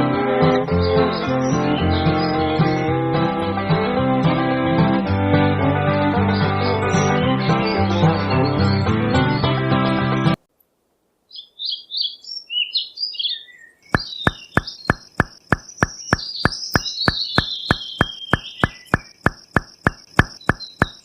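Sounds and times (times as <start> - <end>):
birds chirping: 0.4 - 3.9, 6.0 - 10.2, 11.3 - 21.0
sharp knocks: 14.0 - 21.0.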